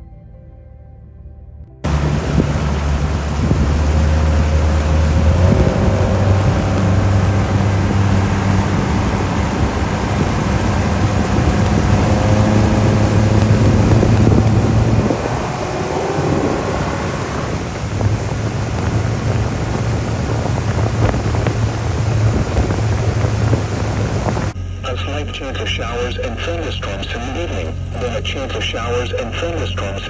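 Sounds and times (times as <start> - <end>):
boat motor running: 1.8 - 30.0
wind on microphone: 1.9 - 24.6.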